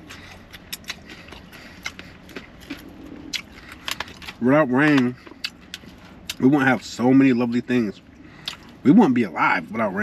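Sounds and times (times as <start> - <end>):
wet eating clicks and smacks: 0.0 - 6.7, 8.4 - 8.8.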